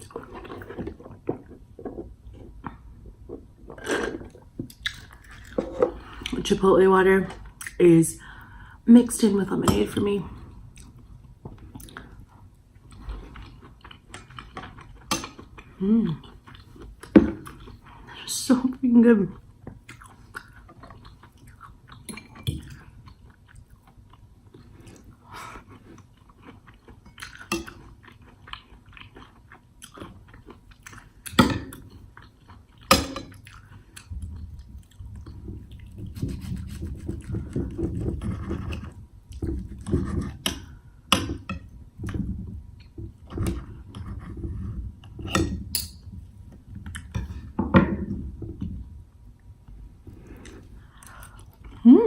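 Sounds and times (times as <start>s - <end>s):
chewing food: 10.7s - 17.9s, 19.3s - 40.4s.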